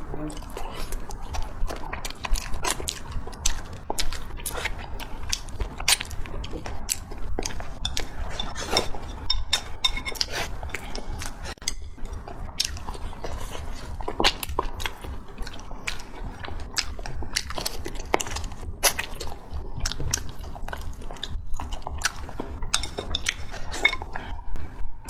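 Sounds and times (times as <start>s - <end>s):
person chewing and lip smacking: 0.0s - 25.0s.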